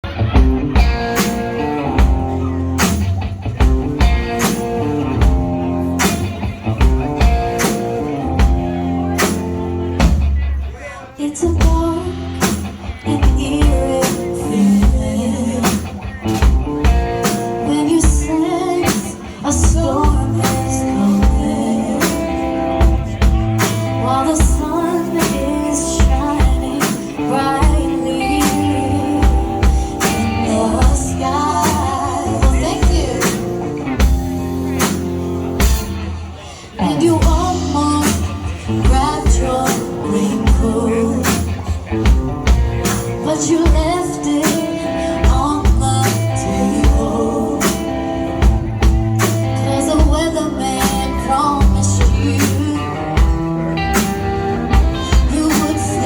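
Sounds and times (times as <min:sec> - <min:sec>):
drum kit beat: 0:00.0 - 0:10.7, 0:11.5 - 0:56.0
bass and guitar chords: 0:00.0 - 0:56.0.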